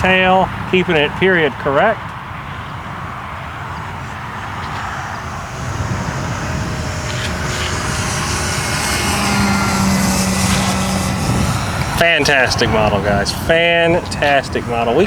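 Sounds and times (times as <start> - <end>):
model plane motor: 3.6 - 15.0
steady tone: 3.8 - 15.0.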